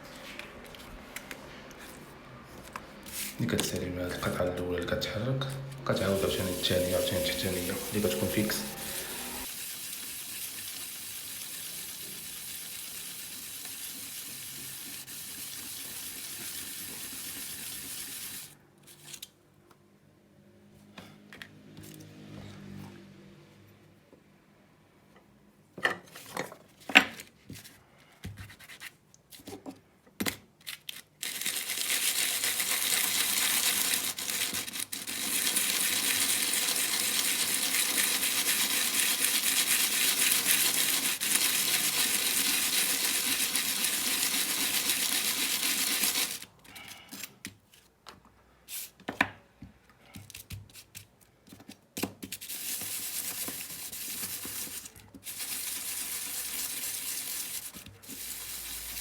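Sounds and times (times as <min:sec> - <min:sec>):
blade scraping on abrasive: 0:05.9 - 0:09.5, 0:31.3 - 0:46.5.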